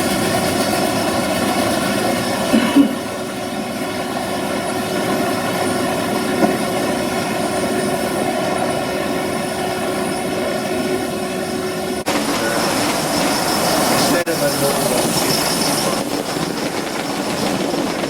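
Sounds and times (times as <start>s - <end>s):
model train whirring hum: 3.2s - 18.0s.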